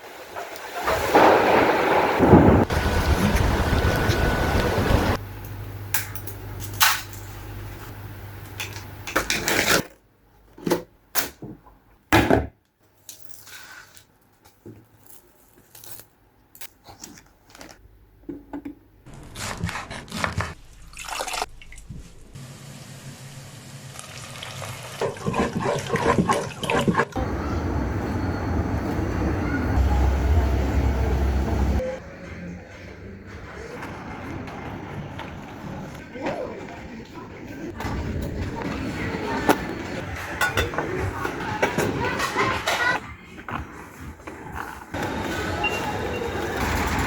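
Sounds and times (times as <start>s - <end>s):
water drips and splashes: 20.8s - 22.0s.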